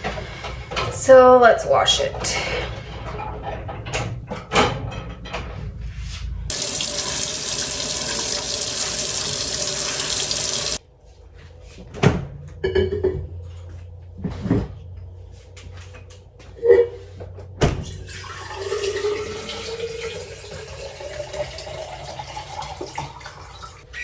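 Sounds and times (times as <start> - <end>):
tap water running into sink: 6.5 - 10.8, 18.0 - 23.8.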